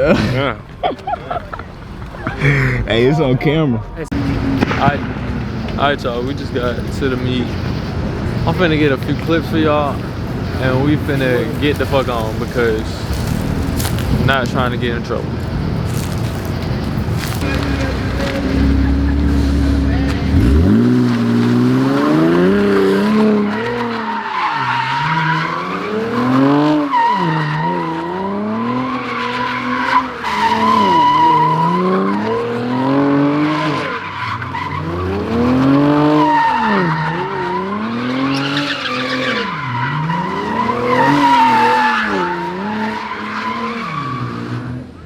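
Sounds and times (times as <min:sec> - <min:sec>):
tyres squealing: 0:00.0 - 0:44.5
car engine revving: 0:03.2 - 0:45.0.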